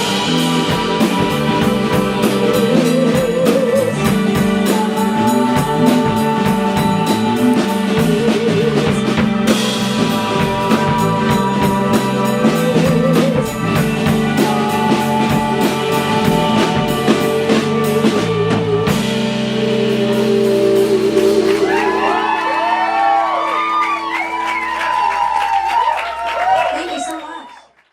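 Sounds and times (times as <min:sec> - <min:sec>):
woman singing: 0:00.0 - 0:22.4
live band playing: 0:00.0 - 0:27.4
audience whooping: 0:20.1 - 0:27.9.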